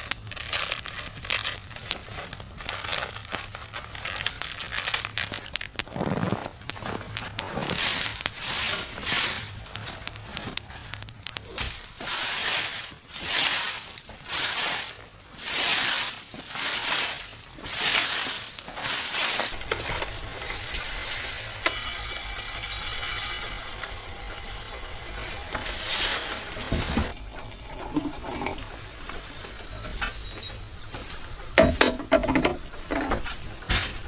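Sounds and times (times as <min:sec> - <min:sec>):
crackling and crinkling: 0:00.0 - 0:34.0
rhythmic scraping strokes: 0:18.8 - 0:33.4.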